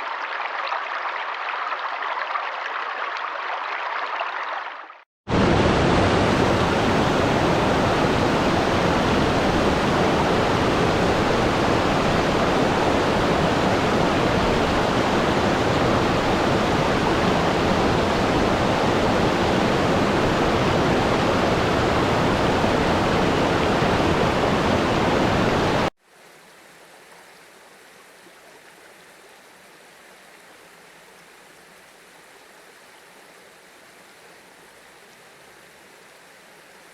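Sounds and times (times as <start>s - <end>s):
stream water rushing: 0.0s - 36.9s.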